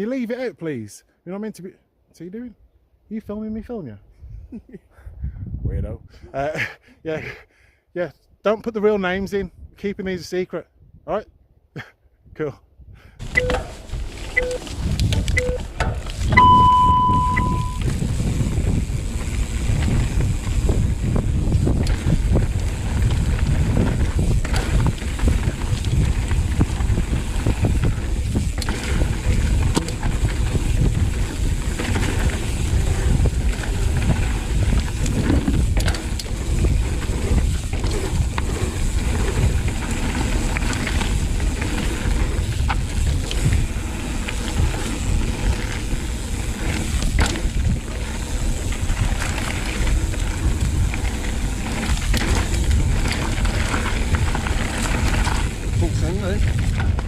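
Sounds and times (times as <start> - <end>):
wind rushing over microphone: 4.1 - 6.3, 12.2 - 57.0
bike rattling and knocking: 13.2 - 57.0
tyre rumble on dirt: 15.9 - 57.0.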